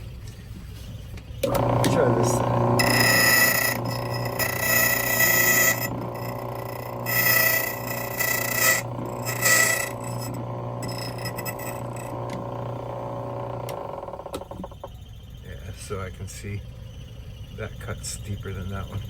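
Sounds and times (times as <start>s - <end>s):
machine motor hum: 1.2s - 19.0s
cutter rasping on metal: 1.4s - 14.7s.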